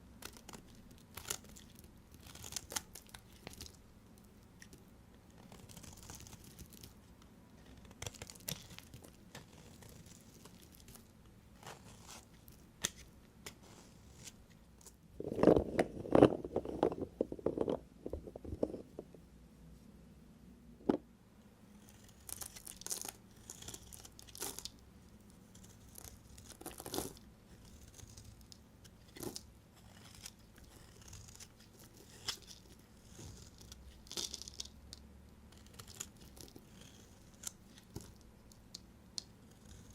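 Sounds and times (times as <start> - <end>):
knife cutting soap: 25.5 - 34.8, 35.5 - 39.9.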